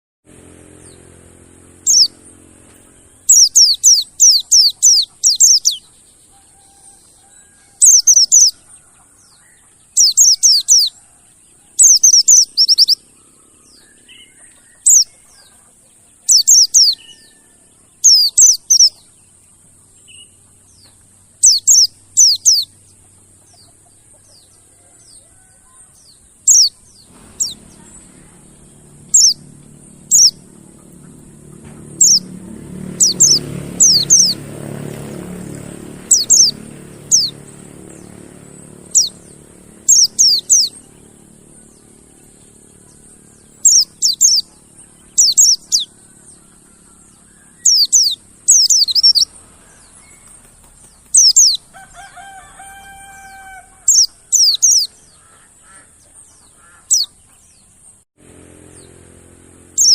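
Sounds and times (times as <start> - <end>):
low hum: 0.3 - 6.3, 25.9 - 51.8, 57.4 - 59.9
bird high falling chirps: 1.8 - 11.0, 11.8 - 19.1, 25.0 - 57.8.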